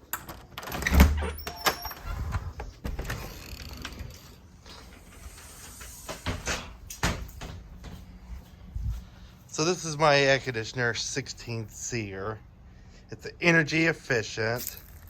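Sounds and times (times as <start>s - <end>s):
door squeak: 0.6s - 4.2s.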